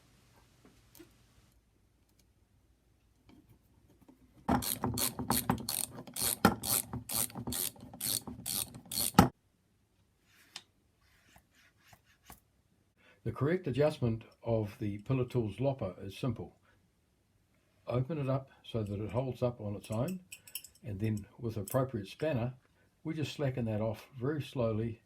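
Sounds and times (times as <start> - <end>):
ratchet wrench clicking: 4.6 - 9.2.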